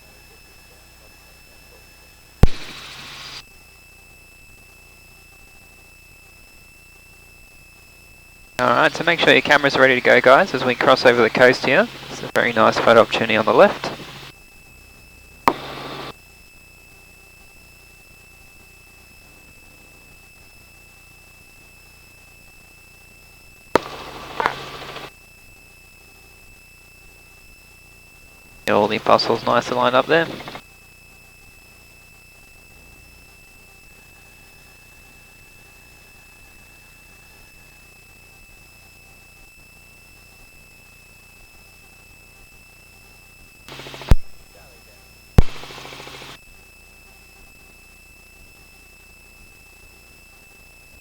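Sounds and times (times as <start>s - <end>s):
radio hiss: 0.0s - 3.4s, 8.6s - 14.3s, 15.5s - 16.1s, 23.8s - 25.1s, 28.7s - 30.6s, 43.7s - 46.4s
intercom hum with high whine: 0.0s - 51.0s
microphone click and noise burst: 43.7s - 44.4s
microphone click: 44.1s - 44.3s.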